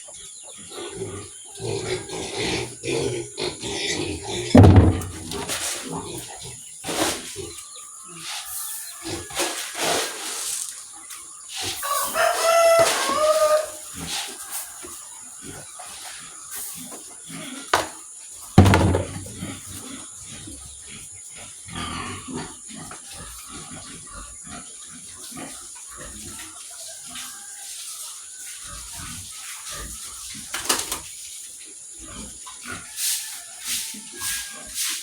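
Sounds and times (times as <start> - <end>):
pigs grunting: 0.1 - 7.6, 15.4 - 18.0, 18.6 - 26.6, 28.6 - 30.6, 31.9 - 32.9
loud thump: 4.6 - 5.5, 18.6 - 19.4
rooster crowing: 11.8 - 15.0, 32.9 - 34.9.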